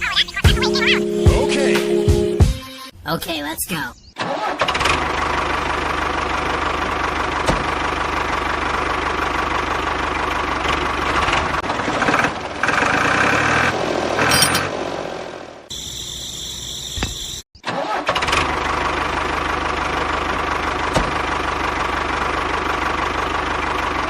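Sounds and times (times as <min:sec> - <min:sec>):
engine idling with knocking beat: 0:05.0 - 0:12.2, 0:18.5 - 0:24.0.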